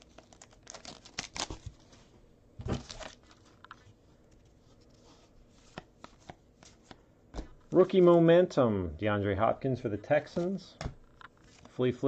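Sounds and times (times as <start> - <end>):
rustle of cards being handled: 2.7 - 8.3, 10.2 - 12.0.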